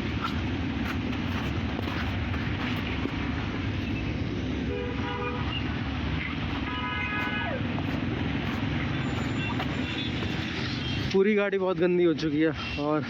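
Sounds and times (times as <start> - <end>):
low rumble of vehicles: 0.0 - 13.0
car horns honking: 4.7 - 5.7, 6.5 - 8.0, 8.8 - 11.1.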